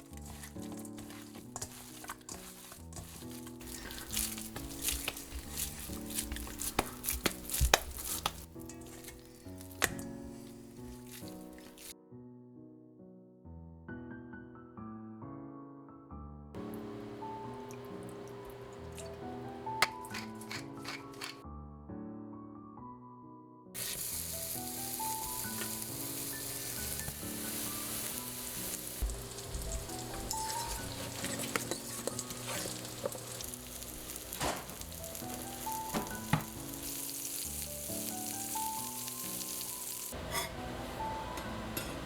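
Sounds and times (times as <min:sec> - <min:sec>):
food sizzling in frying pan: 0:00.0 - 0:11.9, 0:23.8 - 0:42.0
utensil clicking against pan: 0:00.0 - 0:11.9, 0:19.8 - 0:21.4, 0:29.0 - 0:37.0.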